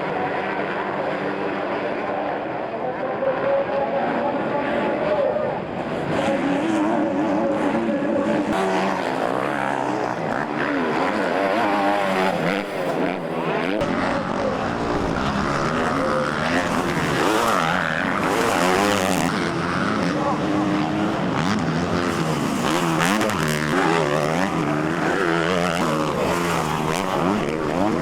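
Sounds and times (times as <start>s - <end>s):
motorcycle engines revving: 0.0s - 28.0s.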